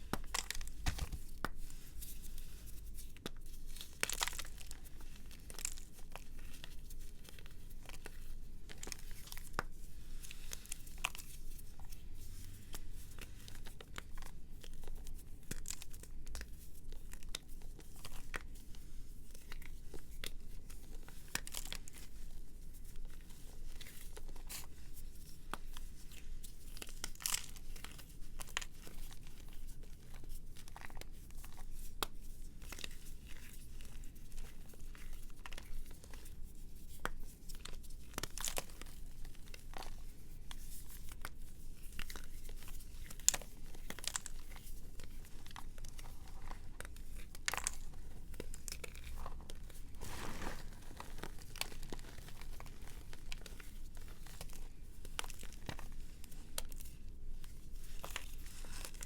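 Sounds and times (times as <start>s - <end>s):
brittle material crunching: 45.8s - 53.6s.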